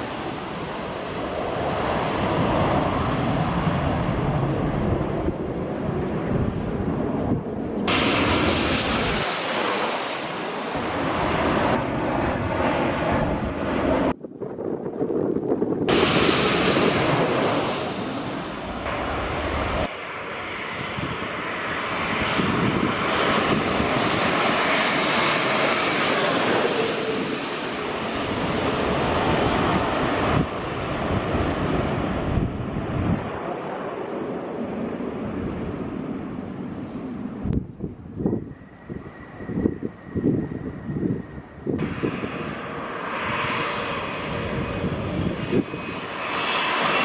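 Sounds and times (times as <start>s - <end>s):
jet airliner flying overhead: 0.0s - 47.0s.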